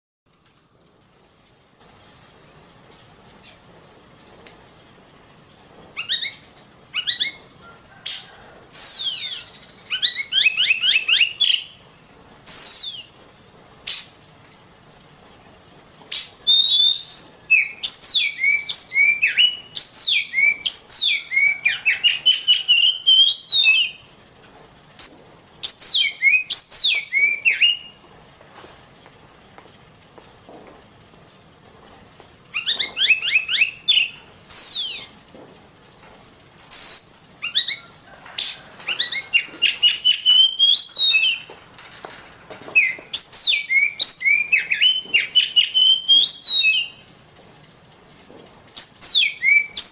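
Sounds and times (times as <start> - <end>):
bird singing whistled notes: 5.6 - 11.8, 12.4 - 13.2, 15.8 - 24.1, 25.0 - 28.0, 32.5 - 35.2, 36.7 - 41.5, 42.8 - 47.1, 48.8 - 49.9.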